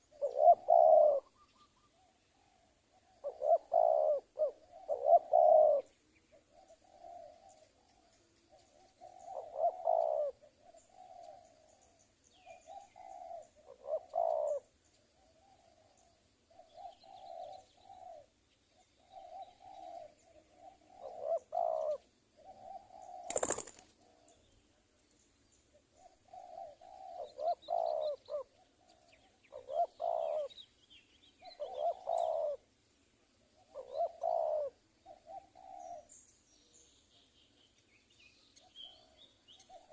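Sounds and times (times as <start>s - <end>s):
doves cooing: 0.0s - 24.4s, 25.8s - 30.6s, 31.4s - 32.7s, 33.5s - 36.2s, 38.6s - 39.9s.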